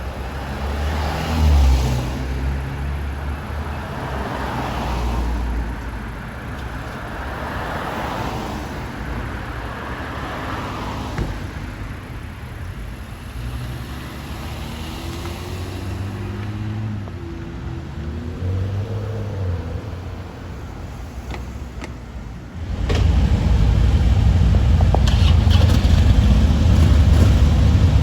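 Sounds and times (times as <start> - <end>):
cars driving past: 0.0 - 28.0
heavy low rumble: 22.6 - 28.0.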